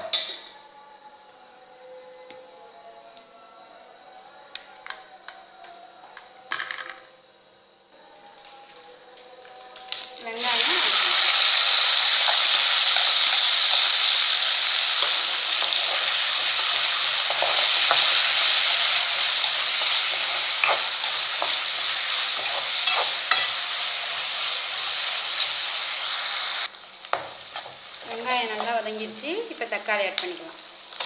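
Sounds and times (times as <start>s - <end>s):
onions sizzling in oil: 10.0s - 31.0s
spoon stirring in pan: 15.0s - 25.5s, 27.1s - 28.8s.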